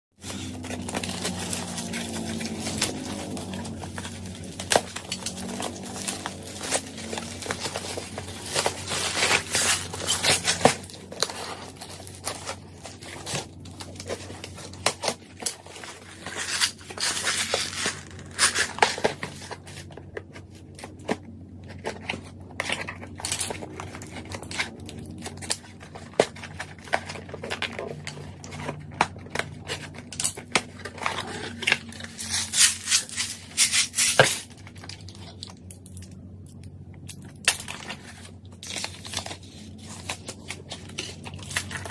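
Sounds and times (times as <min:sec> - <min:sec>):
packaging rustling and crinkling: 0:00.2 - 0:36.2, 0:37.1 - 0:41.9
metal parts clicking and clinking: 0:40.7 - 0:41.9.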